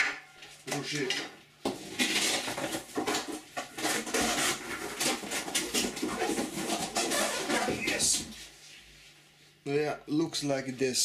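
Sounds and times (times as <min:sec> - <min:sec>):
packaging rustling and clattering: 0:01.8 - 0:08.2.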